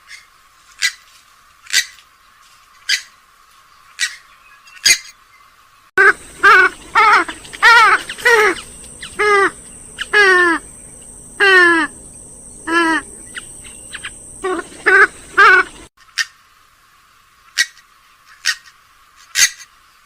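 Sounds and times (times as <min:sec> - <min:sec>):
waterbird calling loudly: 0:06.0 - 0:16.3.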